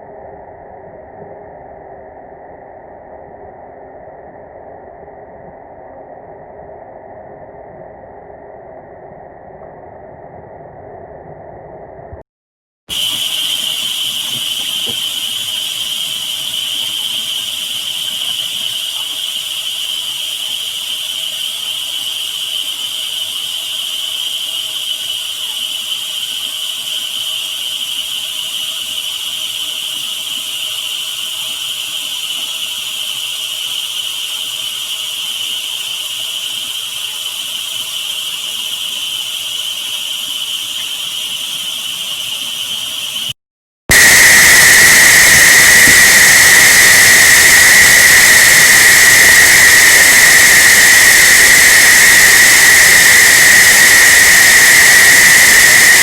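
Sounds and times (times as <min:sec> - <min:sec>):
even hiss: 0:12.9 - 0:56.0
steady high whistling tone: 0:12.9 - 0:56.0.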